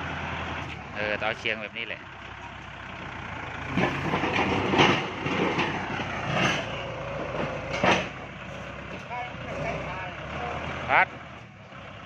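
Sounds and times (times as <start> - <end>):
tractor diesel engine running: 0.0 - 12.0
metal clanks and scrapes: 3.7 - 9.8.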